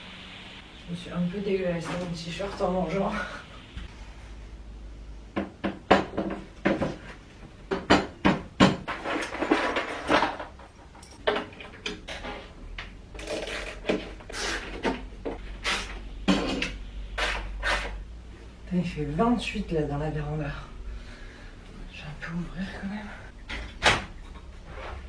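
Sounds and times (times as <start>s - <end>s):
household objects clattering: 5.8s - 15.4s.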